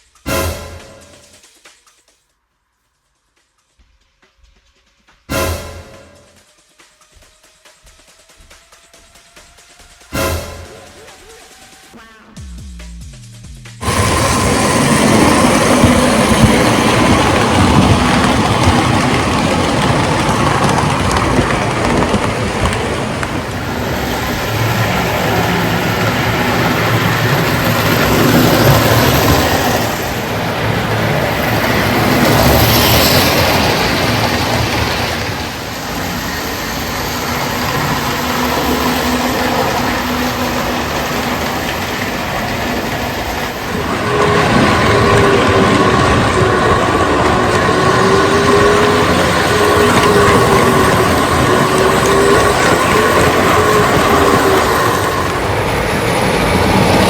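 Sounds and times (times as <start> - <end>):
toy train running on track: 6.3 - 12.2, 13.8 - 57.0.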